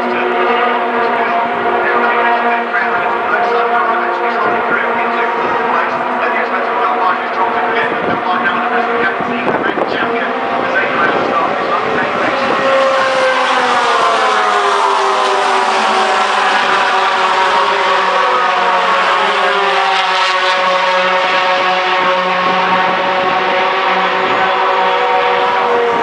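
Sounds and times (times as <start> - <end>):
racing truck engines: 0.0 - 26.0.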